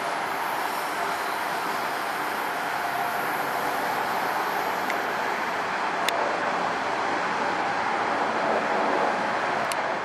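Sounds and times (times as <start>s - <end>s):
road traffic: 0.0s - 10.0s
train running on rails: 0.0s - 10.0s.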